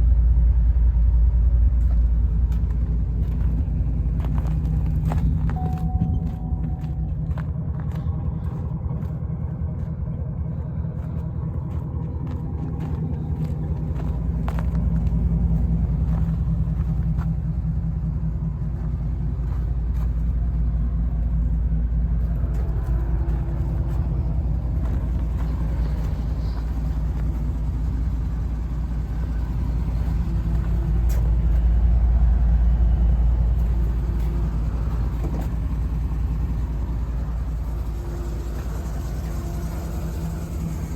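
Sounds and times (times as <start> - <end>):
pickup truck engine running: 0.0 - 40.9.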